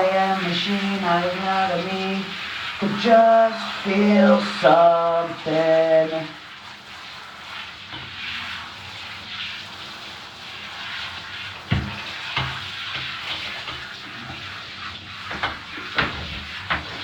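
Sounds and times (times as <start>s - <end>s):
tap water running: 0.0s - 17.0s.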